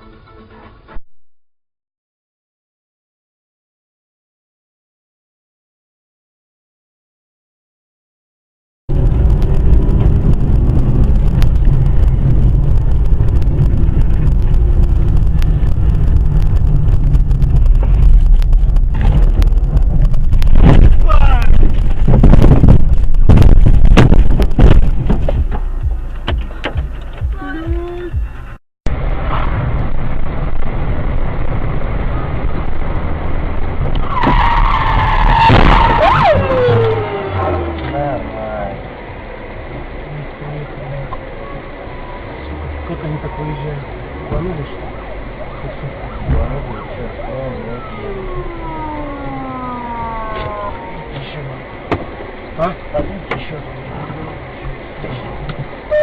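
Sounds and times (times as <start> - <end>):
car engine and road noise: 0.0 - 1.0, 8.9 - 56.0
car tyres squealing: 33.8 - 56.0.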